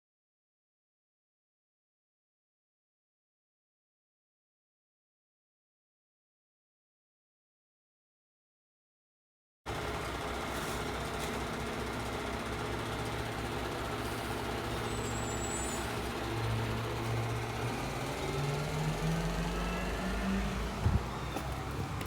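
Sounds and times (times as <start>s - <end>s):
garbage truck engine running: 9.7s - 22.0s.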